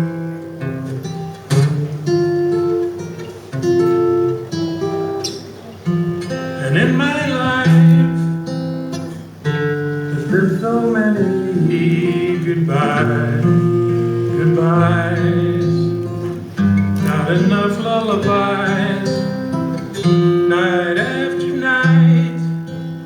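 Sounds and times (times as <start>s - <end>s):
acoustic guitar playing: 0.0s - 23.0s.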